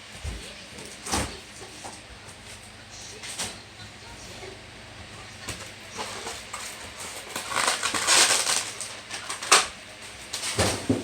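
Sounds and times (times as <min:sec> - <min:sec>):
crackly rustling: 0:05.1 - 0:11.0.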